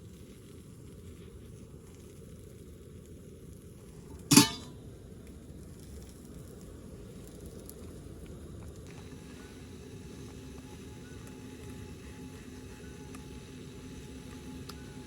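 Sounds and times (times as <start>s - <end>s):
metallic clank of cookware: 4.2s - 4.8s.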